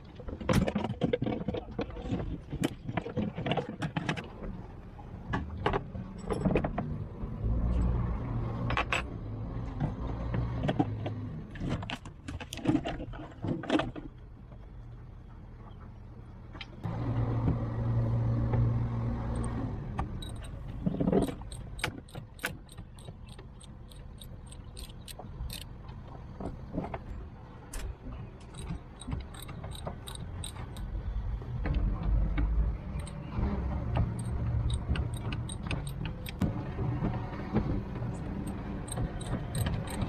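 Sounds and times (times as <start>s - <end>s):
metal tools clinking: 20.2s - 25.7s, 28.5s - 30.9s.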